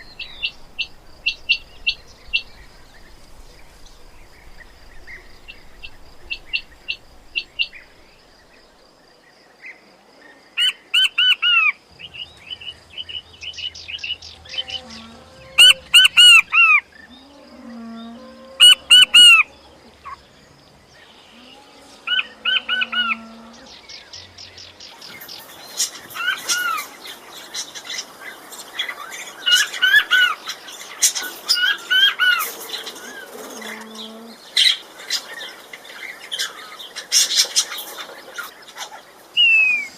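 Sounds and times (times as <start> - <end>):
quail calling: 14.4 - 16.9, 18.6 - 20.2.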